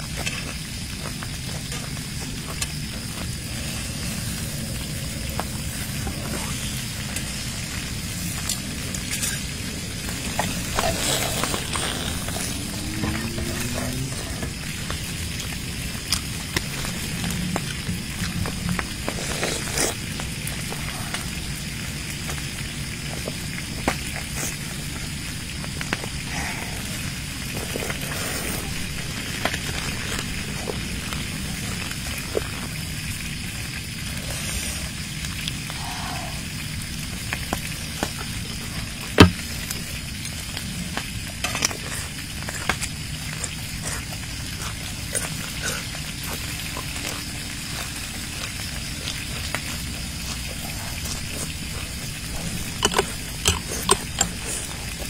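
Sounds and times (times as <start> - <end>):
wet chewing and smacking: 0.0 - 21.2, 37.2 - 55.0.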